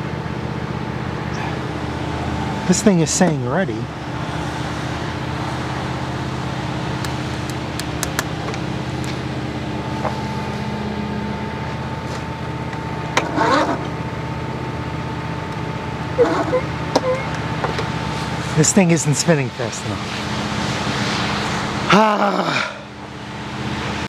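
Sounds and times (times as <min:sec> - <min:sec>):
lawn tractor engine cranking: 0:05.4 - 0:09.2, 0:12.1 - 0:18.5.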